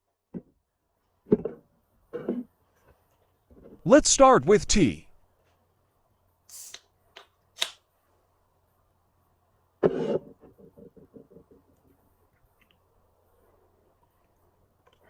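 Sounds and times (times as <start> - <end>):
can tab opening with hiss: 6.5 - 7.8.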